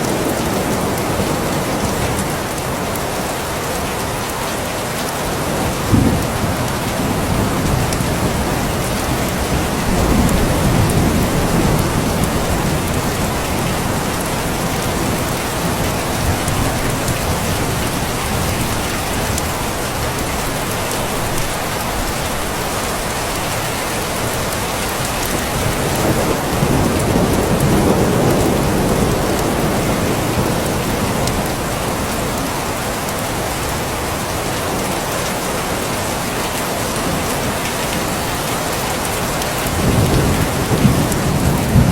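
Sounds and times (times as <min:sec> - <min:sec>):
heavy rain falling: 0:00.0 - 0:41.9
distant thunder rolling: 0:05.6 - 0:22.2, 0:24.2 - 0:32.2, 0:39.2 - 0:41.9.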